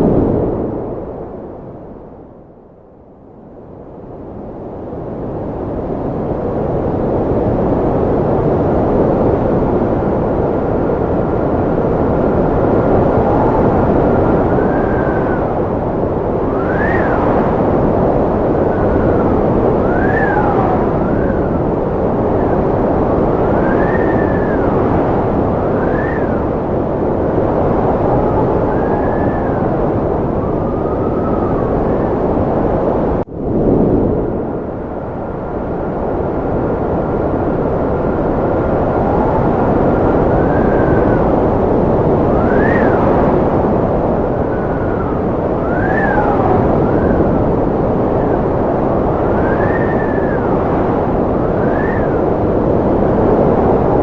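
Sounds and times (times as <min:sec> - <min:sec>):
strong wind rushing: 0:00.0 - 0:54.0
wind whistling tones: 0:00.0 - 0:54.0.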